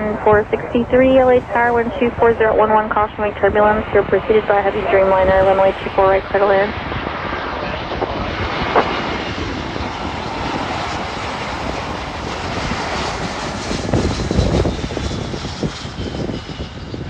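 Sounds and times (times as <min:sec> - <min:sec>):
jet airliner engine roar: 0:00.0 - 0:17.0.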